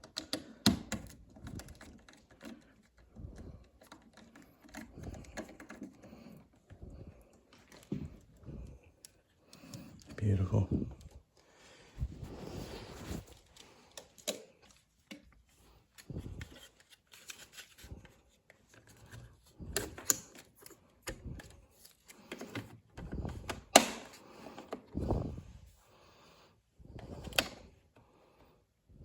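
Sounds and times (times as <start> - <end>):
hands handling tools and parts: 12.0 - 25.4.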